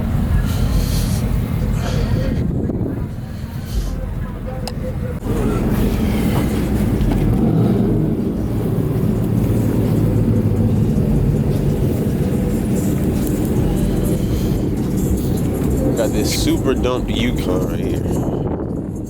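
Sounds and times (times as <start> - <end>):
truck engine droning: 0.0 - 19.0.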